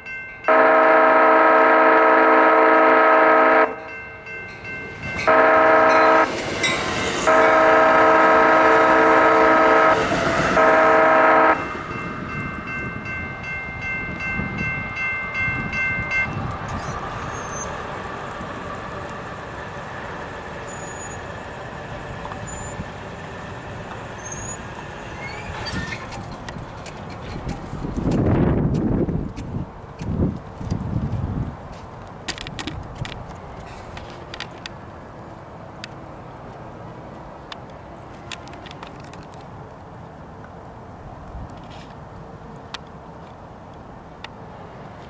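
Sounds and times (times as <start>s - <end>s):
train rumbling past: 0.0s - 45.0s
train air horn blasts: 0.5s - 3.9s, 5.2s - 6.3s, 7.2s - 11.8s.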